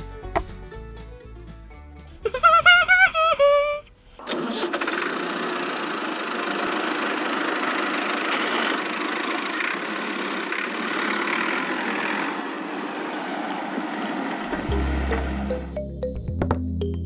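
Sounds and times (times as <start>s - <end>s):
small motor running: 4.7s - 13.1s.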